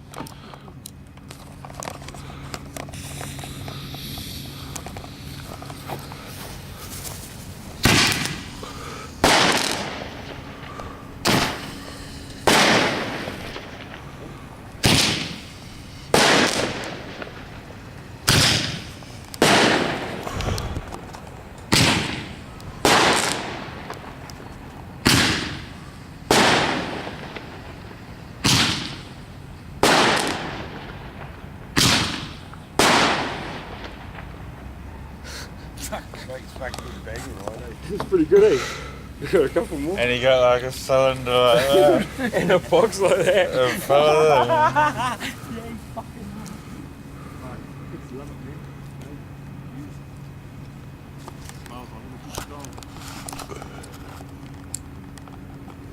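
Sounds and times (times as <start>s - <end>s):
firework bangs: 1.2s - 35.0s.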